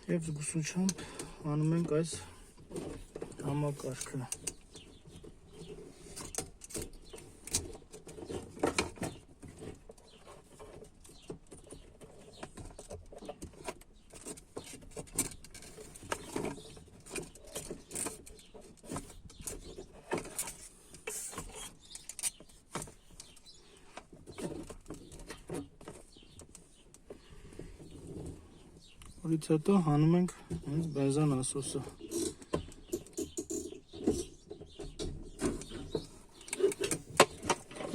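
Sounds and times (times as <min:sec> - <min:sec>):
plastic and metal parts rattling: 0:00.1 - 0:29.2, 0:30.3 - 0:37.9.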